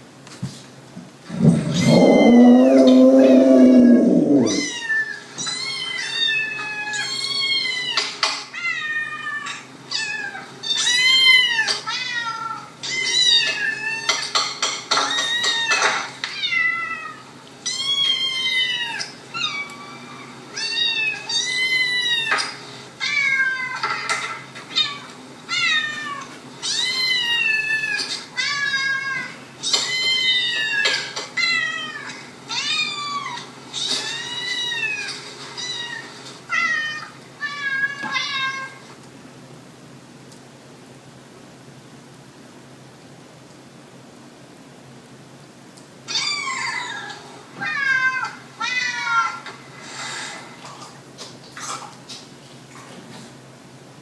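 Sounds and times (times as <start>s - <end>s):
dog howling: 1.3s - 4.8s
cat meowing: 1.4s - 8.0s.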